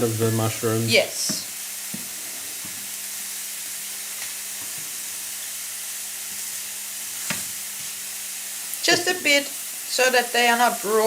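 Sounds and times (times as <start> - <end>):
mushrooms sizzling in a frying pan: 0.0 - 11.0.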